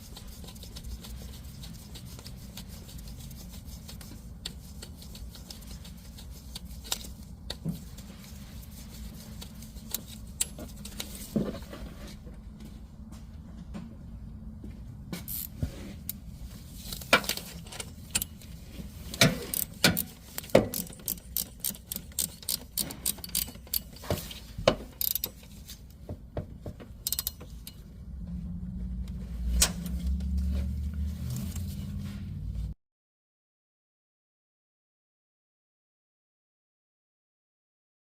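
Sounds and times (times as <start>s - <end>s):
hand tools clicking on metal: 19.1s - 24.0s, 25.0s - 25.5s, 27.0s - 27.8s
steady low rumble: 27.6s - 32.8s.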